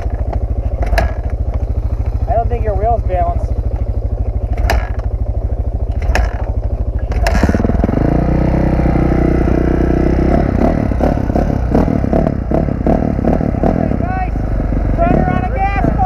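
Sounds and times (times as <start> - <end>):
dirt bike engine idling and revving: 0.0 - 16.0
sharp clicks: 3.7 - 5.2, 5.9 - 7.7.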